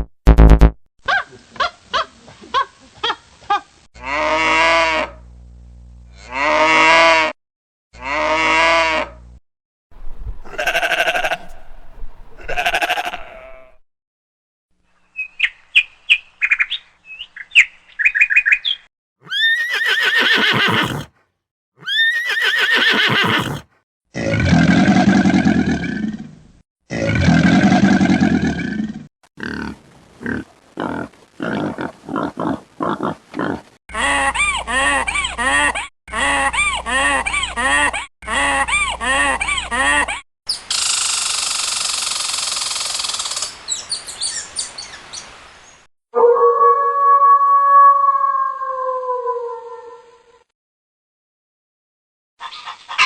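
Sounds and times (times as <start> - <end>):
recorded farm animal calls: 10.5 - 11.6, 12.4 - 13.8, 52.4 - 53.0.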